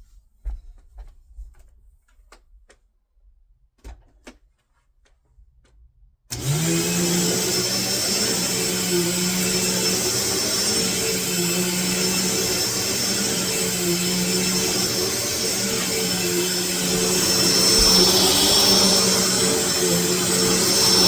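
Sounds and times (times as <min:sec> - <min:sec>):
vacuum cleaner motor running: 0:06.3 - 0:21.0.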